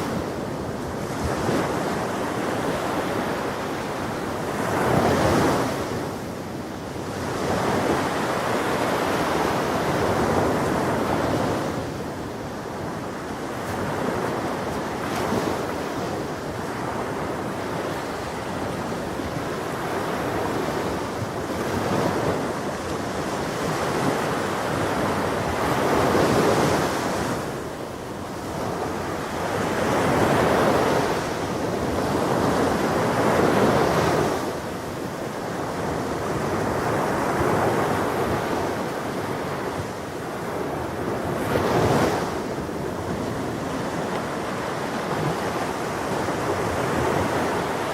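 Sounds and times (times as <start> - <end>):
ocean waves breaking on shore: 0.0 - 47.9.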